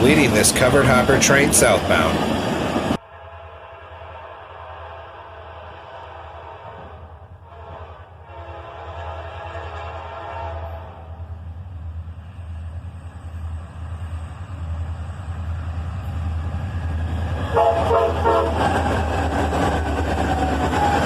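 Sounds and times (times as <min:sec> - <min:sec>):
train wheel noise: 0:00.0 - 0:03.1, 0:08.1 - 0:21.0
diesel locomotive engine rumble: 0:00.0 - 0:21.0
train air horn blasts: 0:03.0 - 0:11.2, 0:17.5 - 0:18.6.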